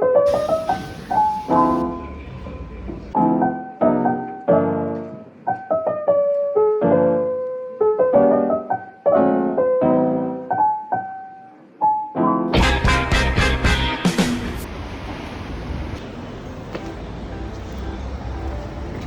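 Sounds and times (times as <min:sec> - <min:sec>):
gentle solo piano: 0:00.0 - 0:12.5.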